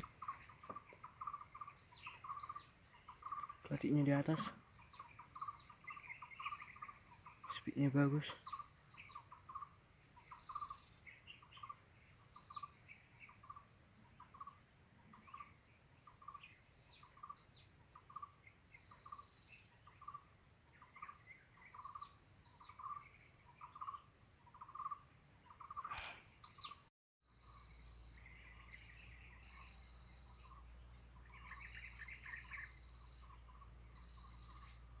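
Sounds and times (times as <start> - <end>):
high bird chirps: 0.0 - 13.6
birds calling faintly: 0.0 - 35.0.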